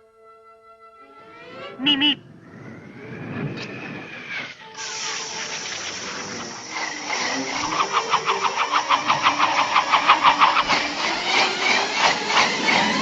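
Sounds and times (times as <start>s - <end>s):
car engine cranking: 5.0s - 13.0s.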